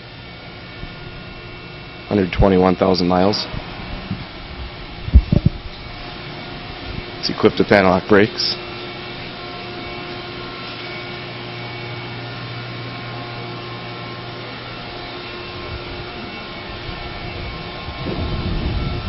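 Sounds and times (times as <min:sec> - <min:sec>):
fan-like hiss: 0:00.0 - 0:19.0
mechanical hum: 0:00.0 - 0:19.0
low rumble: 0:03.5 - 0:07.1.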